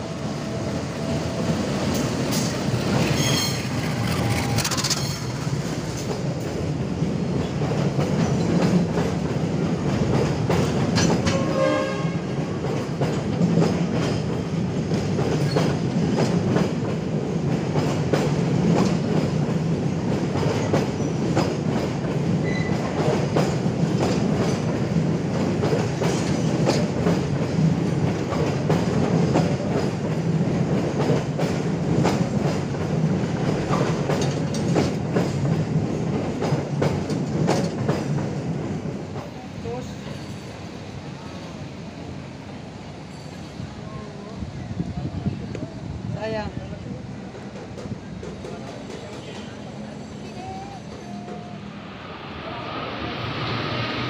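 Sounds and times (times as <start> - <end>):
train wheels clacking over joints: 1.8 - 12.0, 12.6 - 40.6, 47.3 - 49.9.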